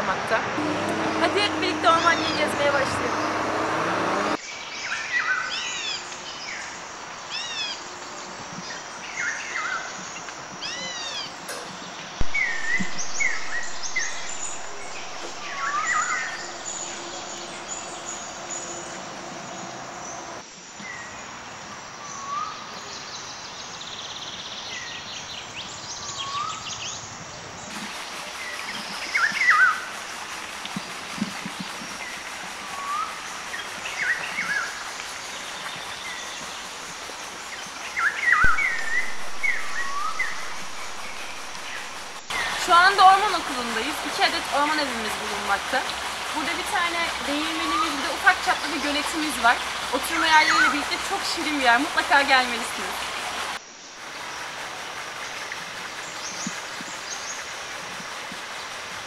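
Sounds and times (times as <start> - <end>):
steady outdoor hiss: 0.0 - 59.0
songbirds chirping and whistling: 4.3 - 21.2, 31.7 - 53.2.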